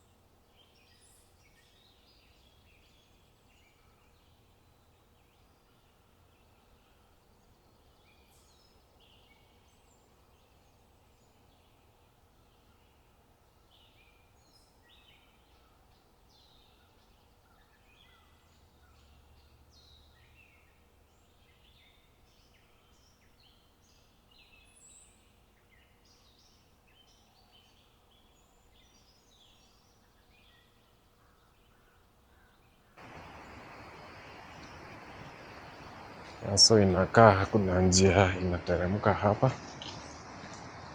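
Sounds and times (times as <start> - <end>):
birds chirping: 0.0 - 40.9
faint low rumble: 33.0 - 40.9.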